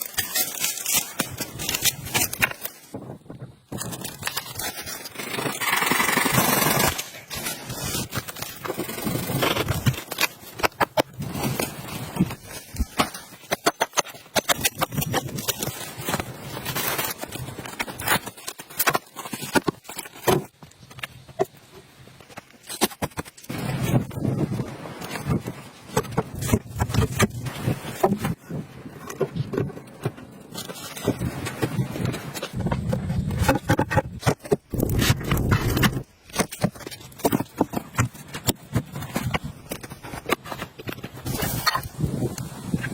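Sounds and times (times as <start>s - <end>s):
clicks knocks and scrapes: 25.0s - 42.0s.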